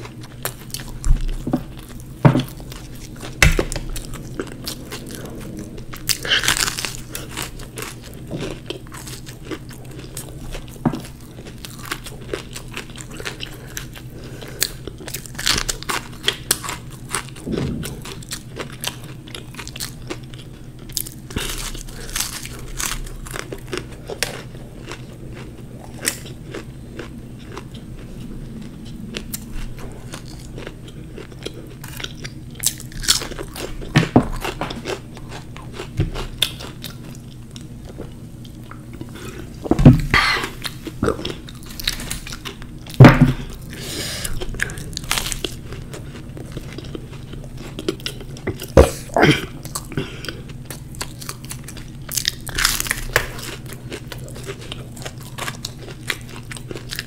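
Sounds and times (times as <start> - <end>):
pastry crust crunching: 0.0 - 28.1, 29.1 - 57.0.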